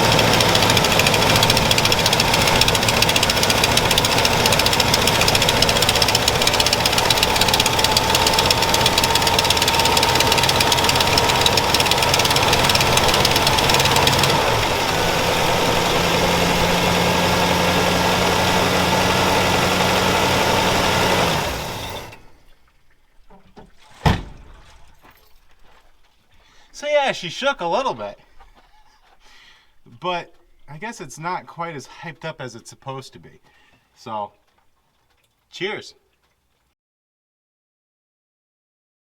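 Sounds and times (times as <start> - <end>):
car engine idling: 0.0 - 22.3.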